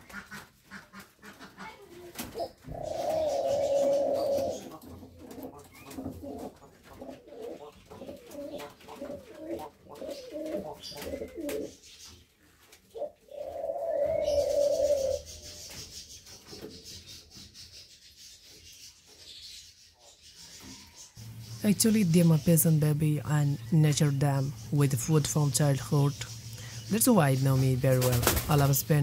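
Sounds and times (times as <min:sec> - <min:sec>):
pigeons cooing: 0:00.0 - 0:18.8.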